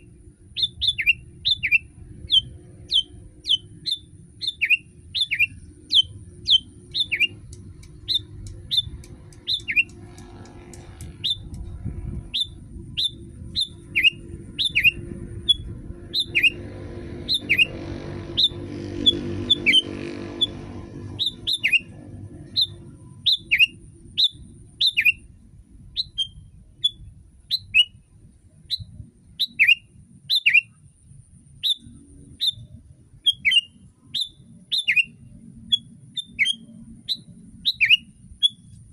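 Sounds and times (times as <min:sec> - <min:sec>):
low background rumble: 0:00.0 - 0:38.9
bird calling sharp falling chirps: 0:08.0 - 0:09.9.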